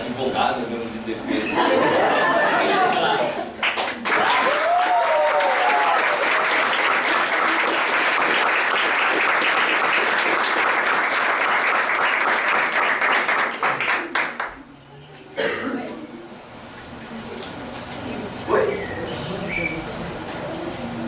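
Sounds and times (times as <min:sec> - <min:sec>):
audience applauding: 0:02.8 - 0:14.6.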